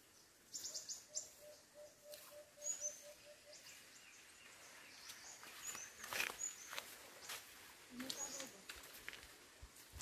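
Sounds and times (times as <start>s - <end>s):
high bird chirps: 0.2s - 7.4s
bird calling low even notes: 0.7s - 3.8s.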